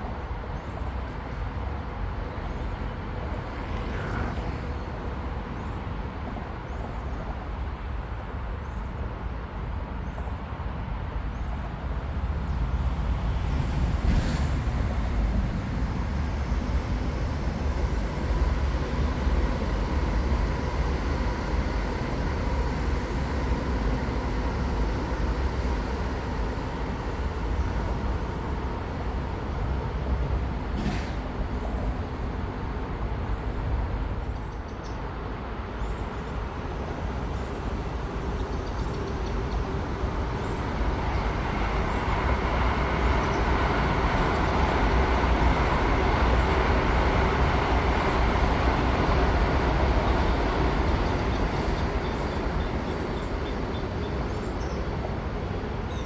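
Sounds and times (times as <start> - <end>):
high-speed train passing: 0.0 - 56.0.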